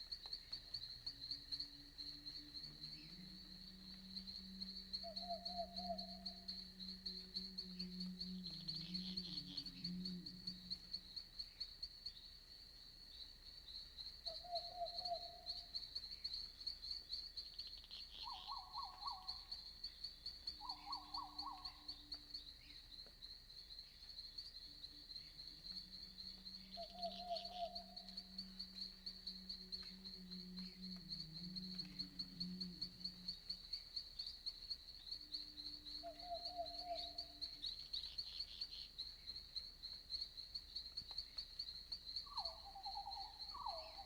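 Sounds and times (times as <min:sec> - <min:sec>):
crickets chirping: 0:00.0 - 0:44.0
owl hooting: 0:18.2 - 0:19.3, 0:20.6 - 0:21.6, 0:42.3 - 0:44.0.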